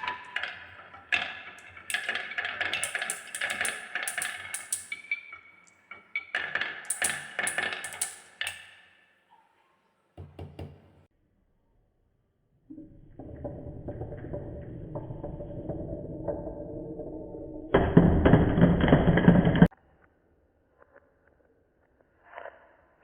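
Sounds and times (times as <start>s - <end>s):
marbles clacking down wooden run: 0.0s - 8.8s.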